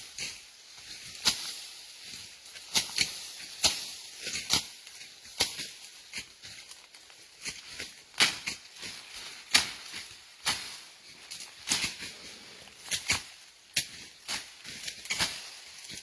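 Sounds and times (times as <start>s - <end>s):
dry brush cracking and rustling: 0.0s - 16.0s.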